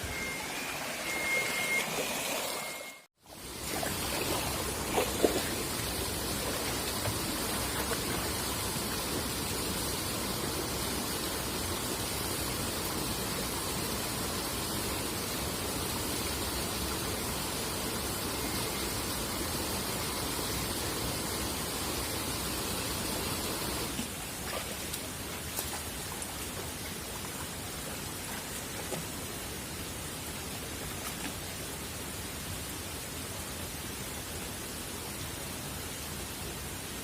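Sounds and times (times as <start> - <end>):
river water rushing: 0.1 - 12.6.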